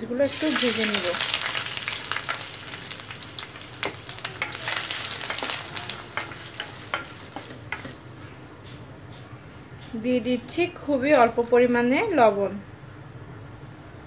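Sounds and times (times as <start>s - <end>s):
prawns sizzling in hot oil: 0.2s - 10.2s.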